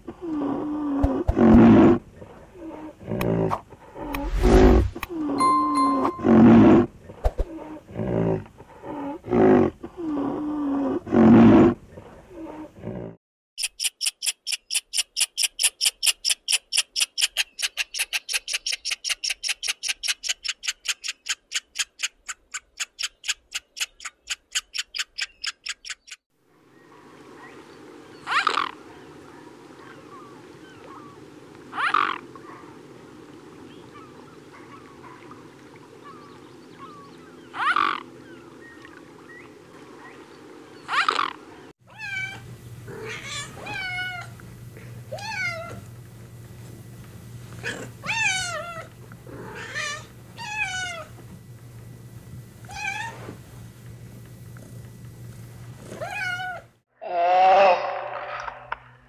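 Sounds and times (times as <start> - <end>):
squirrel chirping: 13.6 - 26.2.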